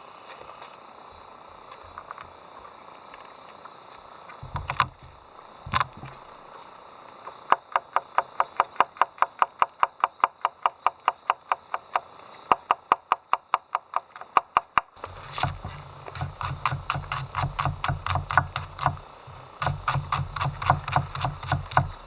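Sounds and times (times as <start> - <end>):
steady high hiss: 0.0 - 22.0
rapid knocks: 4.4 - 6.2, 15.0 - 22.0.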